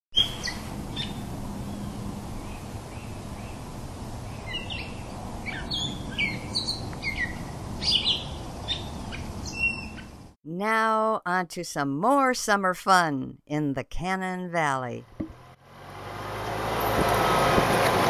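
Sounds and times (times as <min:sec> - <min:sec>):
small birds chirping: 0:00.1 - 0:10.3.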